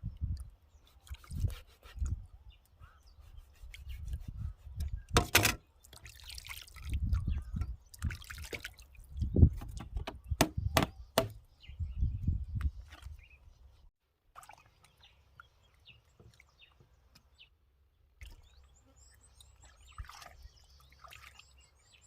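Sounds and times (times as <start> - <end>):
water splashing and dripping: 5.1 - 10.2, 14.3 - 17.3, 19.4 - 21.6
sharp knocks: 9.6 - 11.4.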